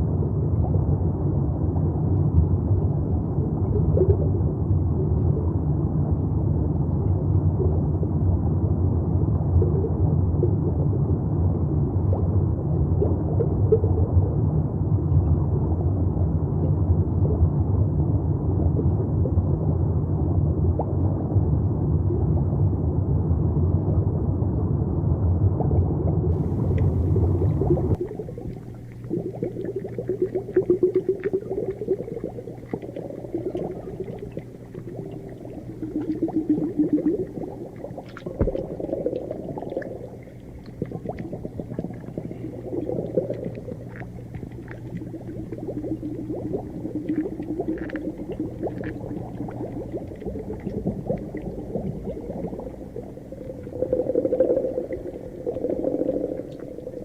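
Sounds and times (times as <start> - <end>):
low steady hum: 0.0 - 57.0
muffled underwater bubbling: 0.0 - 57.0
small clicks and crackles: 27.9 - 51.5.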